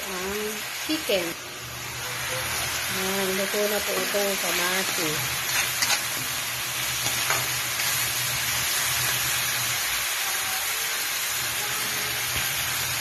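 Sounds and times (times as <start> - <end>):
vegetables sizzling in a frying pan: 0.0 - 13.0
spatula scraping: 3.8 - 6.4.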